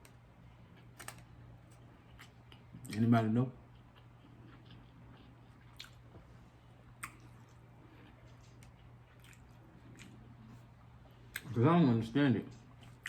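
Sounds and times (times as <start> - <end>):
low steady hum: 0.0 - 13.0
chewing and wet mouth sounds: 2.0 - 3.0, 3.6 - 11.6.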